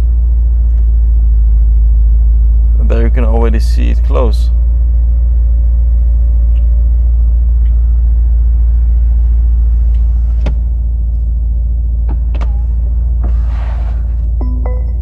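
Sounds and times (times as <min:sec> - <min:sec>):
car engine low rumble: 0:00.0 - 0:15.0
roof mechanism clicks and clunks: 0:09.8 - 0:11.3, 0:12.0 - 0:15.0.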